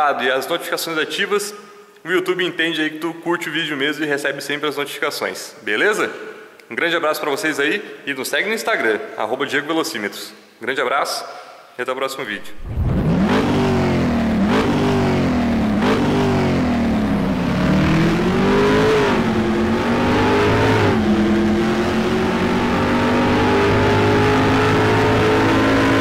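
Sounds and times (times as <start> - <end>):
car engine revving: 12.5 - 26.0.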